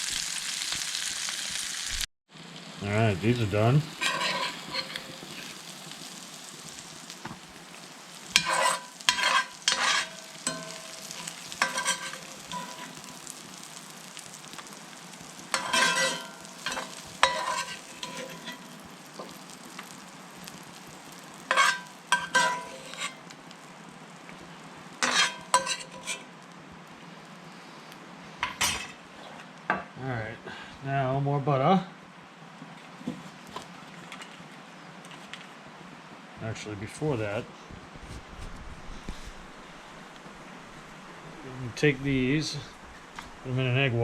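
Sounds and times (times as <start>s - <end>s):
vegetables sizzling in a frying pan: 0.0s - 30.6s, 37.9s - 44.0s
utensil scraping a pan: 3.9s - 5.7s, 8.3s - 13.5s, 15.5s - 19.9s, 21.3s - 23.3s, 25.0s - 26.3s.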